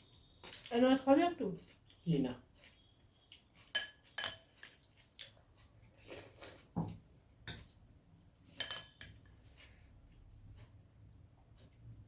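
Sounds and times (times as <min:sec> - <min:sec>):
dishes and cutlery clinking: 0:03.6 - 0:05.4, 0:06.8 - 0:07.8, 0:08.4 - 0:09.8.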